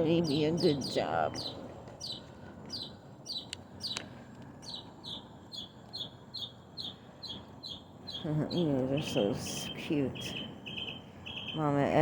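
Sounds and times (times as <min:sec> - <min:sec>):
songbird chirping: 0:00.0 - 0:12.0.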